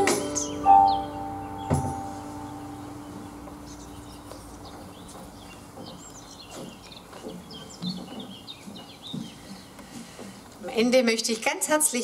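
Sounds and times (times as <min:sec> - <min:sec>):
held music note: 0:00.0 - 0:04.6
birds chirping: 0:00.0 - 0:10.8.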